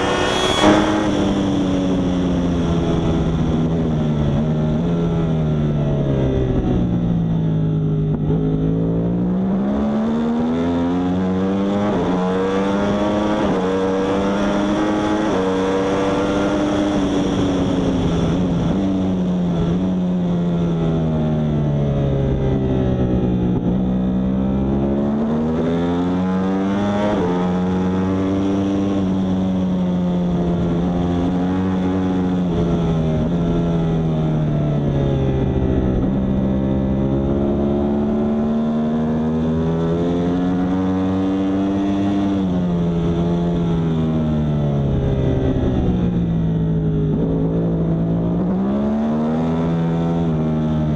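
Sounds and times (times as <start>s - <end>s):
motorcycle engine revving through gears: 0.0s - 50.9s.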